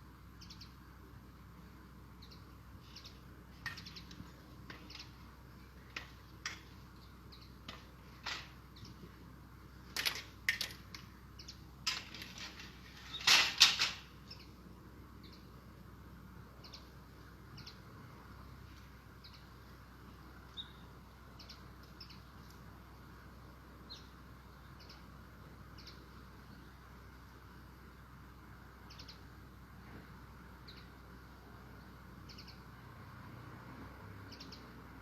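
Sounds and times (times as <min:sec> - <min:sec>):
faint high bird chirps: 0:20.4 - 0:22.4, 0:28.8 - 0:29.3.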